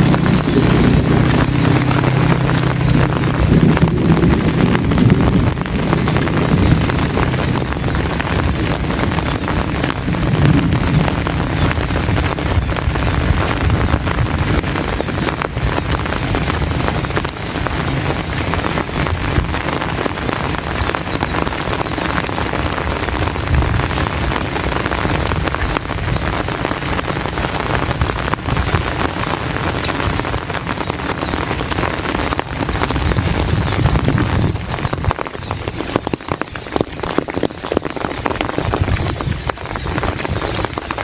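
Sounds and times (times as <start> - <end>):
heavy rain drumming on umbrella: 0.0 - 41.0.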